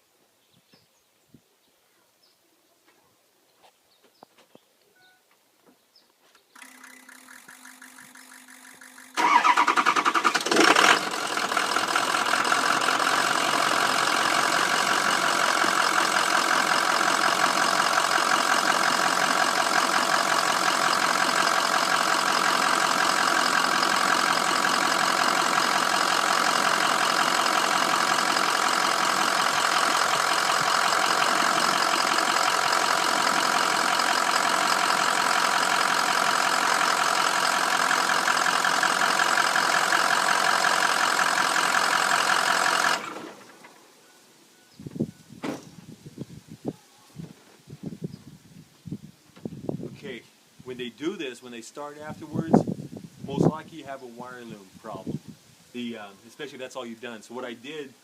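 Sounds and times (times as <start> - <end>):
steady whir: 6.6 - 11.3
diesel engine starting and idling: 6.6 - 44.1.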